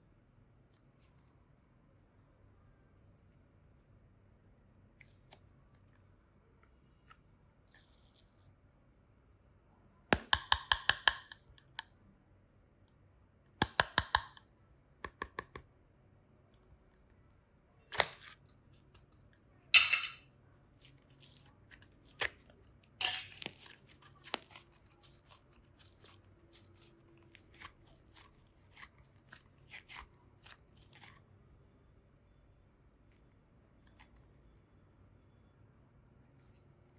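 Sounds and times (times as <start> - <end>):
sharp clicks of clay: 10.2 - 11.9, 13.6 - 14.4.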